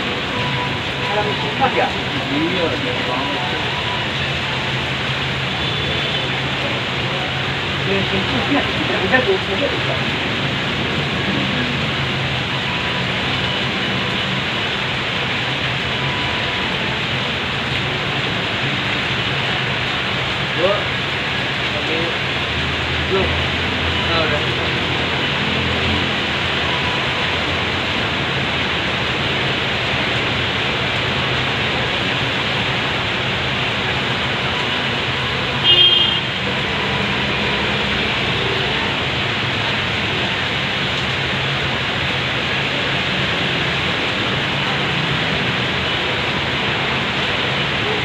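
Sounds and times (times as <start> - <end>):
heavy rain hissing: 0.0 - 48.0.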